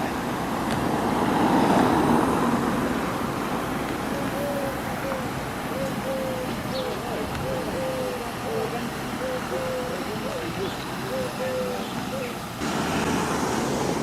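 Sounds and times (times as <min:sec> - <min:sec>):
motor vehicle passing: 0:00.0 - 0:14.0
faint distant voices: 0:02.8 - 0:14.0.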